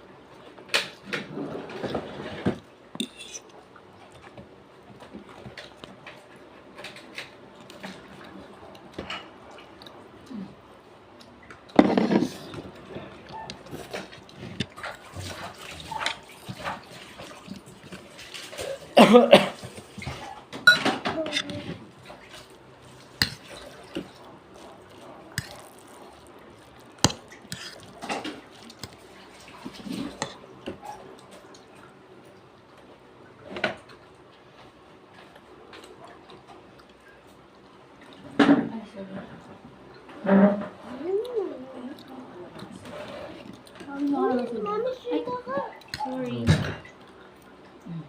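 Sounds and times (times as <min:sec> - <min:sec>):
mouth and dish noise: 0:01.1 - 0:08.0, 0:11.2 - 0:31.7.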